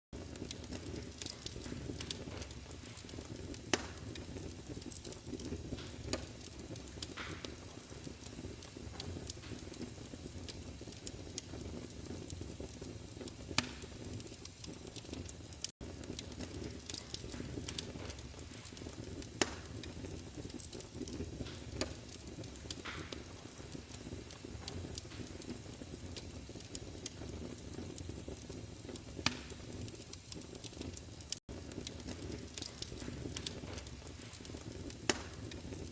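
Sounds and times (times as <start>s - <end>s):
wood fire crackling: 0.1s - 35.9s.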